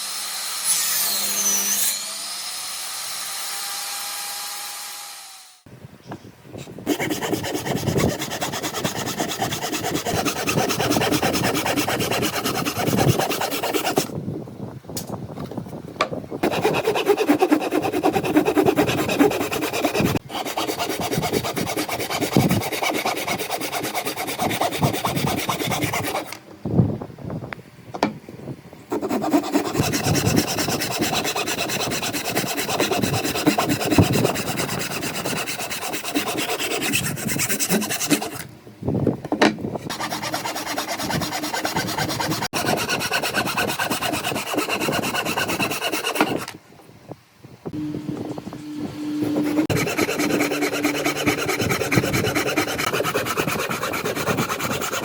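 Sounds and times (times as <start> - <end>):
hand rasping wood: 6.9 - 14.1, 16.4 - 26.4, 28.9 - 38.4, 39.9 - 46.5, 49.4 - 55.0.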